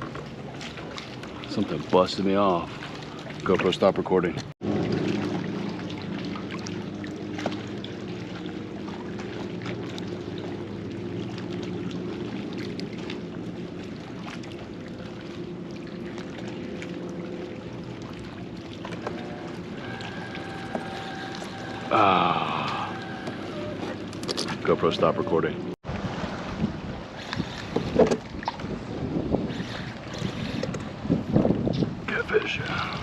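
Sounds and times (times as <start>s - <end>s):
water lapping against hull: 0.0s - 33.0s
electric motor humming: 18.8s - 24.5s.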